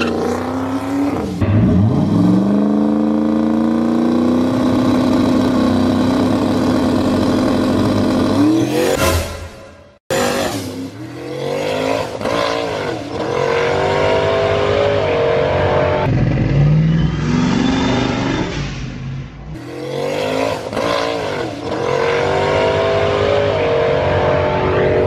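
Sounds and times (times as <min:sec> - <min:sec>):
car engine revving: 0:10.1 - 0:25.0.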